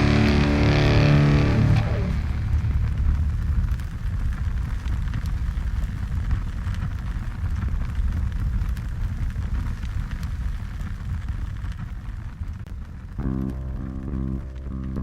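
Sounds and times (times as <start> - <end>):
motorcycle engine rumble: 0.0 - 5.8, 13.2 - 15.0
wind and tyre noise: 0.0 - 13.4.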